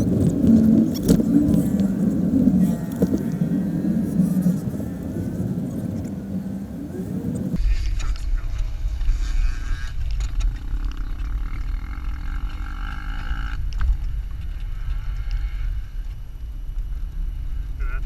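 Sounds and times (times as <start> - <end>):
vehicle engine rumbling: 0.0 - 7.6
faint high whine: 0.0 - 10.0.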